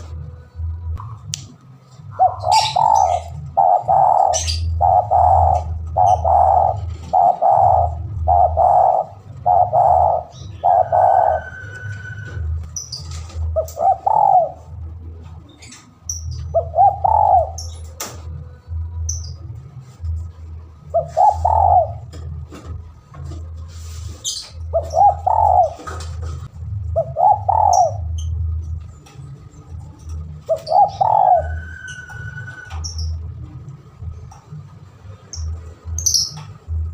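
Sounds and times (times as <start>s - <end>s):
steady low hum: 0.0s - 36.9s
dove cooing: 2.1s - 14.8s, 16.5s - 17.9s, 20.9s - 22.3s, 24.7s - 28.4s, 30.4s - 32.9s.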